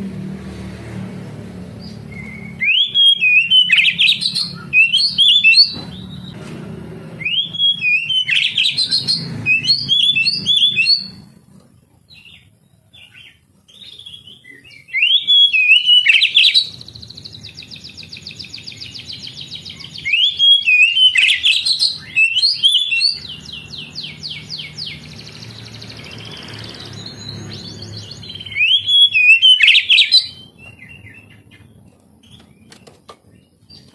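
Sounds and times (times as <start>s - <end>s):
bird singing whistled phrases: 1.8s - 6.4s, 7.2s - 11.2s, 13.1s - 31.6s
bird buzzy trills: 7.2s - 11.5s, 13.1s - 33.9s.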